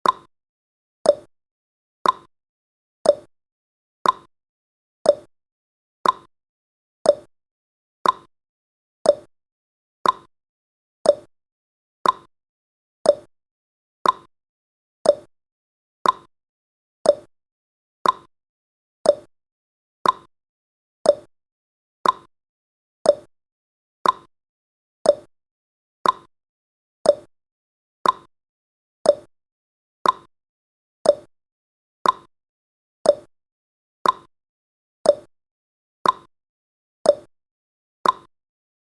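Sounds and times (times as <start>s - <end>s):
timer clock ticking: 0.0s - 0.3s, 1.1s - 1.3s, 2.0s - 2.3s, 3.1s - 3.3s, 4.0s - 4.3s, 5.1s - 5.3s, 6.0s - 6.3s, 7.1s - 7.3s, 8.0s - 8.3s, 9.1s - 9.3s, 10.0s - 10.3s, 11.1s - 11.3s, 12.0s - 12.3s, 13.1s - 13.3s, 14.0s - 14.3s, 15.0s - 15.3s, 16.0s - 16.3s, 17.1s - 17.3s, 18.0s - 18.3s, 19.0s - 19.3s, 20.0s - 20.3s, 21.1s - 21.3s, 22.0s - 22.3s, 23.1s - 23.3s, 24.0s - 24.3s, 25.1s - 25.3s, 26.0s - 26.3s, 27.0s - 27.3s, 28.0s - 28.3s, 29.1s - 29.3s, 30.0s - 30.3s, 31.0s - 31.3s, 32.0s - 32.3s, 33.1s - 33.3s, 34.0s - 34.3s, 35.1s - 35.3s, 36.0s - 36.3s, 37.1s - 37.3s, 38.0s - 38.3s.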